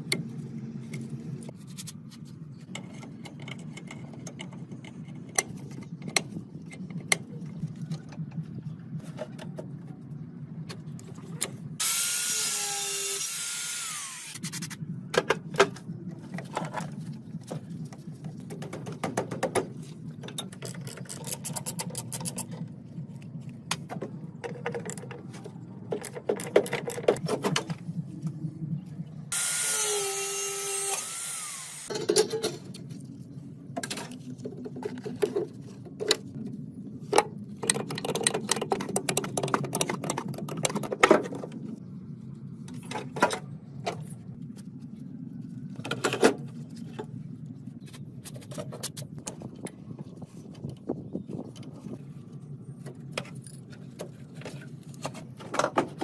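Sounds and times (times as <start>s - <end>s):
low hum: 0.0s - 56.0s
power tool running: 11.8s - 14.5s, 29.3s - 31.9s
hand tools clicking and knocking: 37.6s - 41.4s.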